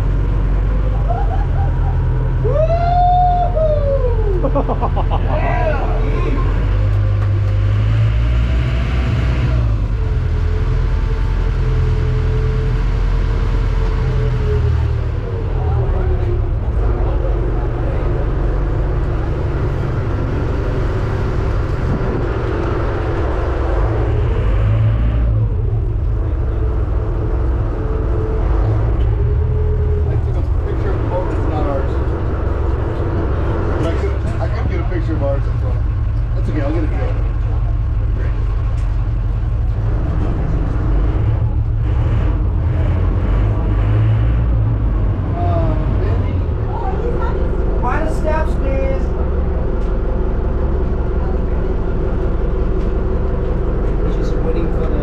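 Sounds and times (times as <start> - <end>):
vehicle engine rumble: 0.0 - 55.0
rushing noise: 5.6 - 36.1.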